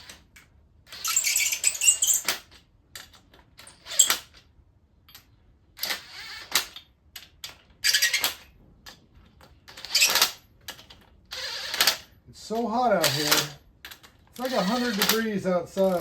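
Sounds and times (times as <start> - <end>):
ratcheting torque wrench clicking: 5.8 - 8.4, 9.7 - 12.1, 13.0 - 16.0.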